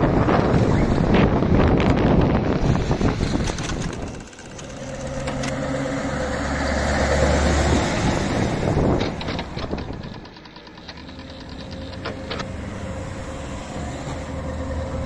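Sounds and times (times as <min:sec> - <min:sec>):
wind noise on microphone: 0:00.0 - 0:05.5, 0:07.1 - 0:10.4
truck diesel engine idling: 0:08.3 - 0:15.0.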